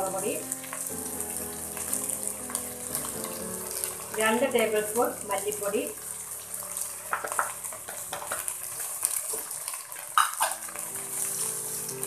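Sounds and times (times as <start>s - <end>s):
food sizzling in oil: 0.0s - 12.0s
utensil knocking and scraping pot: 7.1s - 8.5s.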